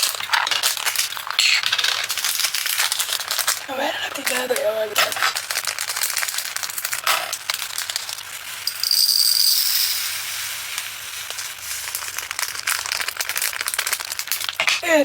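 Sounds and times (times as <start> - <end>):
tiny resin beads rattling: 4.2 - 10.4.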